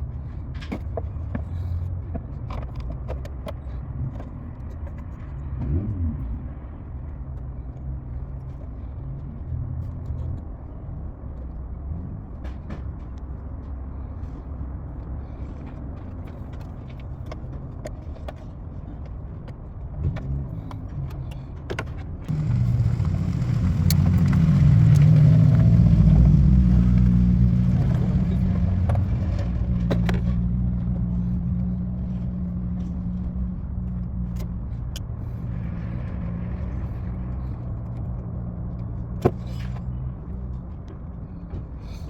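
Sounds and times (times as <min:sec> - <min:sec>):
car engine starting and idling: 0:22.3 - 0:39.2.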